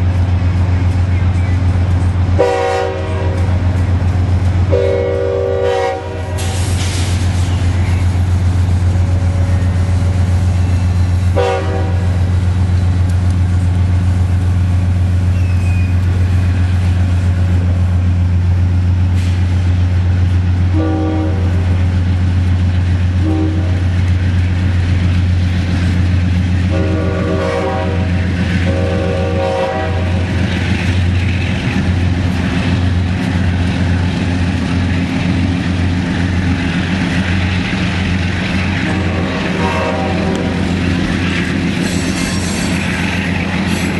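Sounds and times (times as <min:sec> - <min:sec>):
train running with low drone: 0:00.0 - 0:43.9
train horn blasts: 0:02.4 - 0:03.8, 0:04.7 - 0:06.6, 0:11.3 - 0:12.2, 0:20.7 - 0:21.8, 0:23.2 - 0:23.9, 0:26.7 - 0:30.3, 0:38.8 - 0:40.8.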